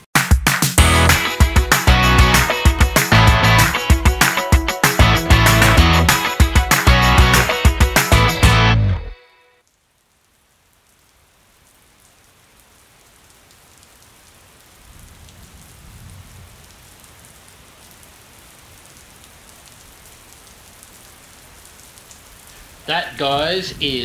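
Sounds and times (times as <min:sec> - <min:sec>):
steady rain falling: 0:09.6 - 0:24.0.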